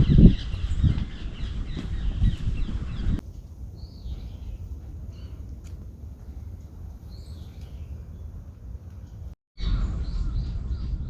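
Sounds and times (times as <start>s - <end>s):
small birds chirping: 0.0s - 9.4s
low uneven rumble: 0.6s - 11.0s.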